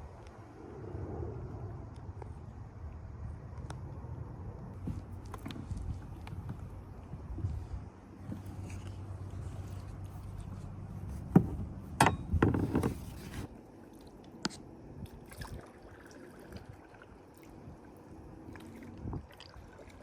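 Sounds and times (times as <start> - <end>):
knocks and scrapes on hull: 7.4 - 13.5
water trickling: 13.7 - 20.0.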